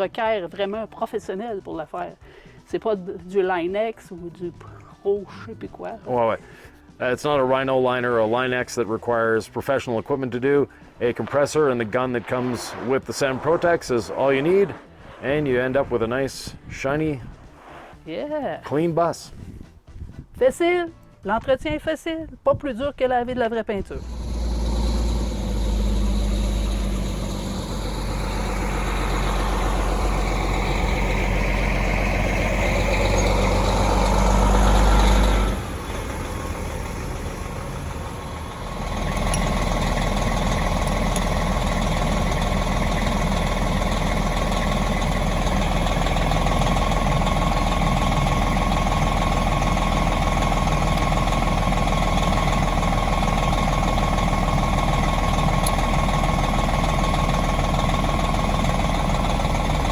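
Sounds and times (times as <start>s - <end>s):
large vehicle engine running: 24.0s - 59.9s.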